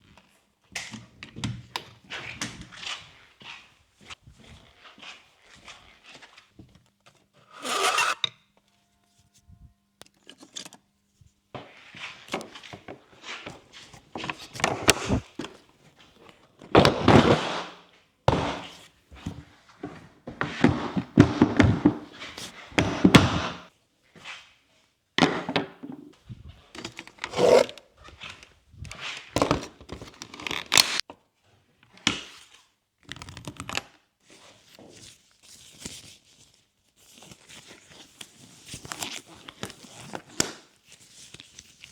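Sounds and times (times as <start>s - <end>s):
tools thunking and scraping: 14.2s - 15.6s, 18.3s - 23.7s, 25.2s - 26.2s.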